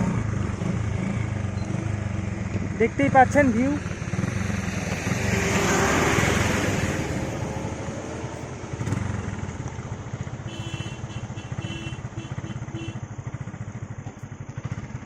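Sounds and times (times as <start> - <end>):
motorcycle engine running: 0.0 - 15.0
wind rushing over microphone: 3.8 - 9.1.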